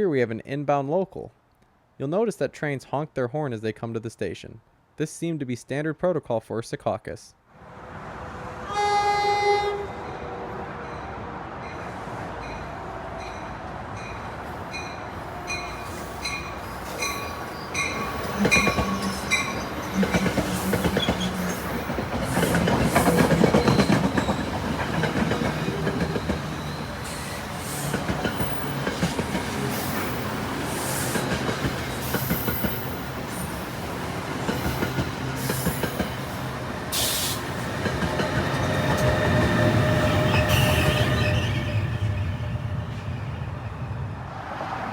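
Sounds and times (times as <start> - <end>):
train rumbling past: 7.6 - 44.9
train horn blast: 8.5 - 10.8, 39.8 - 41.4
wheels clicking over rail joints: 15.5 - 30.4.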